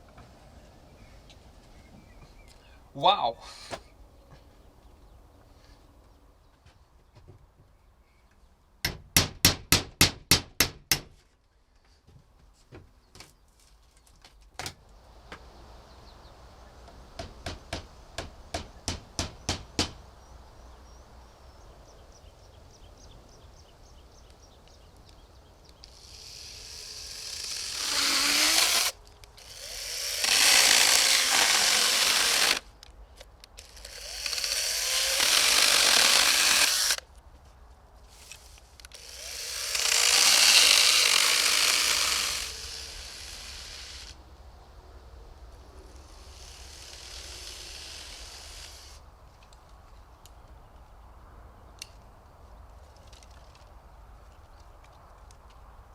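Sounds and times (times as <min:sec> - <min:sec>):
power tool running: 0:25.9 - 0:32.6, 0:33.6 - 0:37.0, 0:39.0 - 0:44.2.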